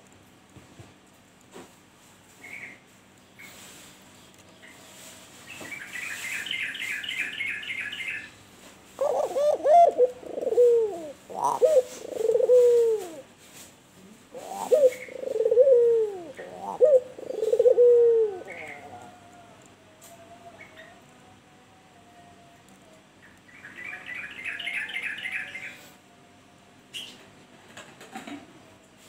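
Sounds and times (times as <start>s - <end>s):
dove cooing: 8.9s - 21.1s.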